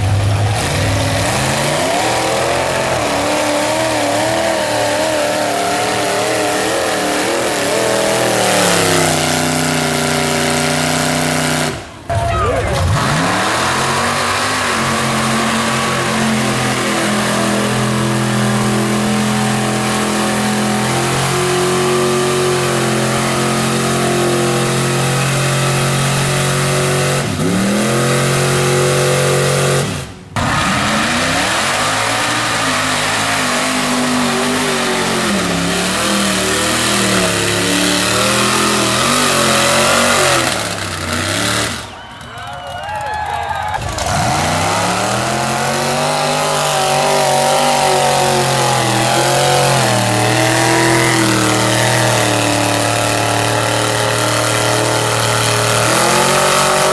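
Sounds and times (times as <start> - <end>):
truck engine revving: 0.0 - 56.9.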